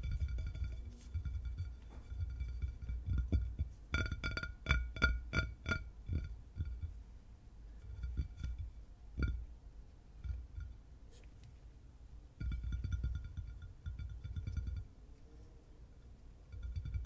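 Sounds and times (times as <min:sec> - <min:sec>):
fingers tapping on ringing object: 0:00.0 - 0:07.0, 0:07.8 - 0:09.5, 0:12.4 - 0:14.9, 0:16.5 - 0:17.0.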